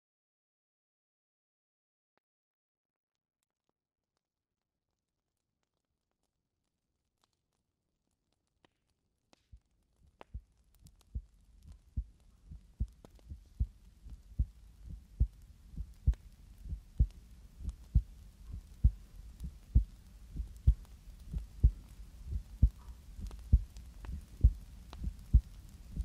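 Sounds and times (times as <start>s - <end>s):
faint light ticks: 9.3s - 26.0s.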